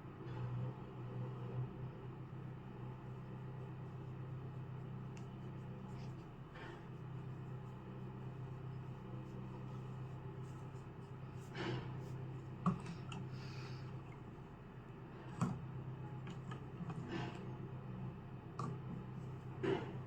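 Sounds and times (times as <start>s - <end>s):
steady low hum: 0.0s - 20.0s
light taps and clicks: 18.6s - 19.0s.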